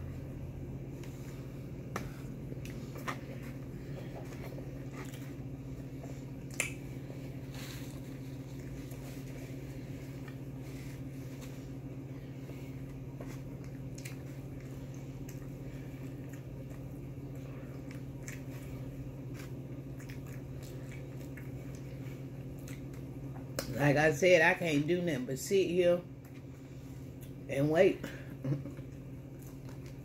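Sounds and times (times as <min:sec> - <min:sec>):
steady low hum: 0:00.0 - 0:30.0
close chewing and mouth sounds: 0:00.9 - 0:23.8, 0:26.1 - 0:27.4, 0:28.6 - 0:30.0.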